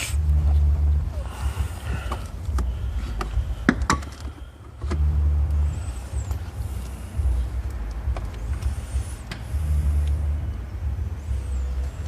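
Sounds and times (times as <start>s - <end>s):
rubbing and deep rumbling: 0.0s - 12.0s
handling noise inside car: 0.4s - 9.5s.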